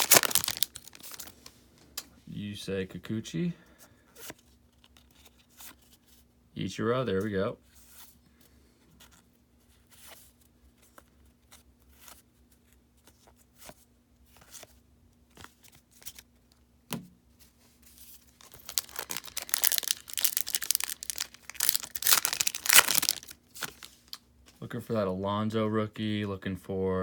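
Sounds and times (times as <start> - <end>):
trading cards handled: 0.0 - 1.5, 18.0 - 24.2
wrapper tearing and crinkling: 0.0 - 1.5, 18.3 - 24.2.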